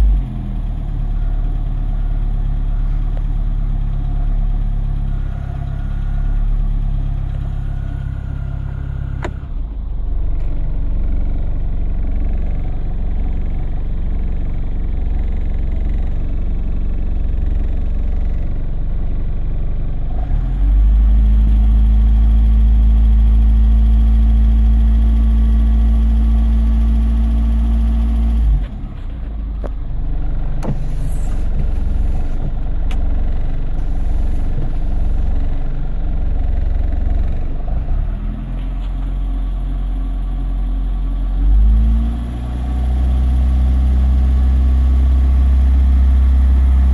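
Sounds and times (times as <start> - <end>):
car engine idling: 0.0 - 41.6
low hum: 28.9 - 38.0.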